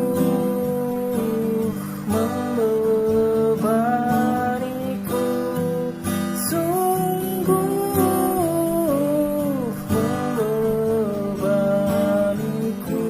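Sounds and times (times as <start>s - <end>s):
acoustic guitar strumming: 0.0s - 13.0s
person singing: 0.0s - 13.0s.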